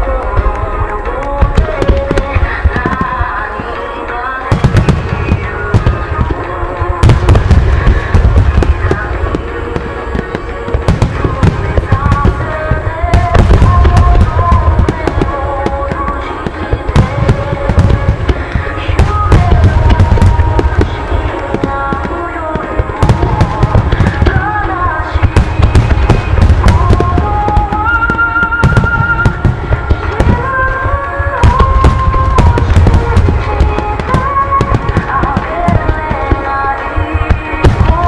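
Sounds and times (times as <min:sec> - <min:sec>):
fireworks booming and crackling: 0:00.0 - 0:38.0
music from loudspeakers: 0:00.0 - 0:38.0.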